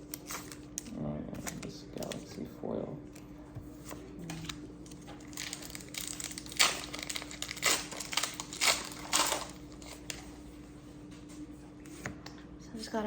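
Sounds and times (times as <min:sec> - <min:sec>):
foil wrapper crinkling: 0:04.4 - 0:10.3.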